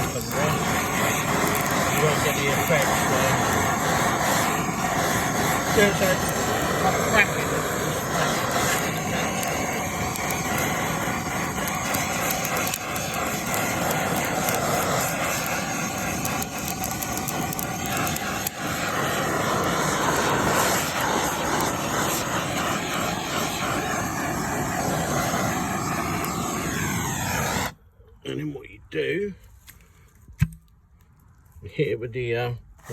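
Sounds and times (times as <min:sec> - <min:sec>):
wood crackling: 0:00.0 - 0:27.7
blowtorch flame blowing: 0:00.0 - 0:27.8.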